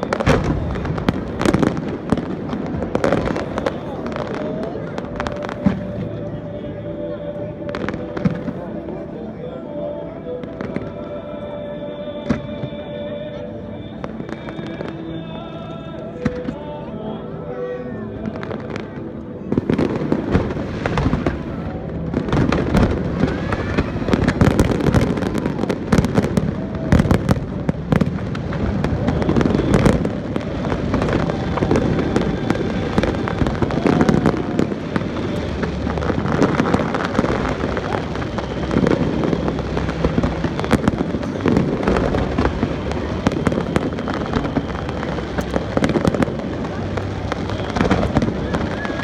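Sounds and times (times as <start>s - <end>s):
fireworks bangs: 0.0s - 6.3s, 7.7s - 9.0s, 19.5s - 49.0s.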